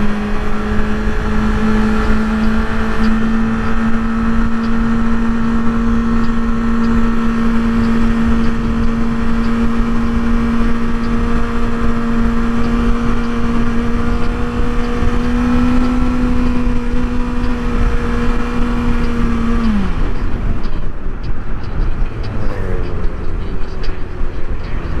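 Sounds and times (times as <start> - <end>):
motorcycle engine at high revs: 0.0 - 25.0
wind noise: 0.0 - 25.0.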